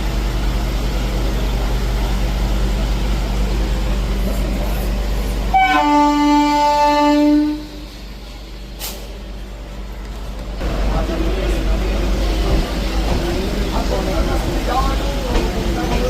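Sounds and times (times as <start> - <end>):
train rumbling: 0.0 - 16.0
train horn: 5.5 - 7.9.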